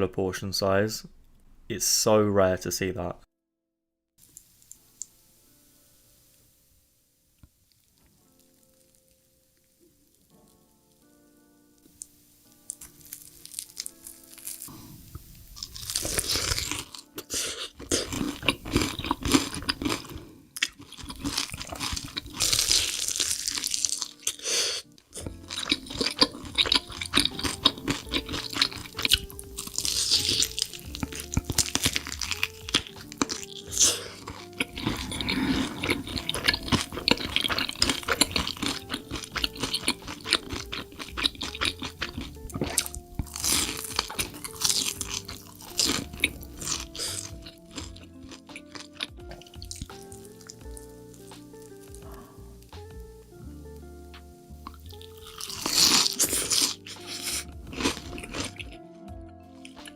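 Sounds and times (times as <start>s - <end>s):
background music: 4.5s - 59.9s
crunchy chewing: 11.9s - 53.1s, 54.2s - 58.8s, 59.5s - 59.9s.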